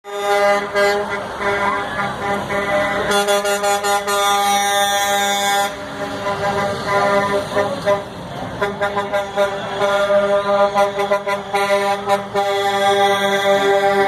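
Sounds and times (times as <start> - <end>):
truck air horns honking: 0.0 - 14.0.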